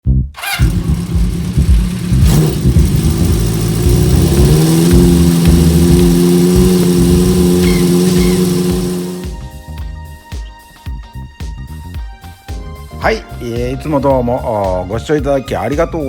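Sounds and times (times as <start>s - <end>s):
car engine revving: 0.4s - 9.4s.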